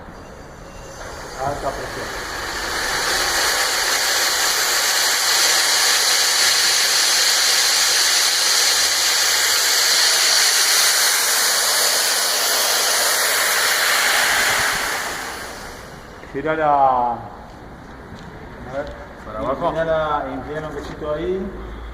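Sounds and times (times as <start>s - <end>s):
gas rushing in a loud hiss: 0.0s - 16.5s.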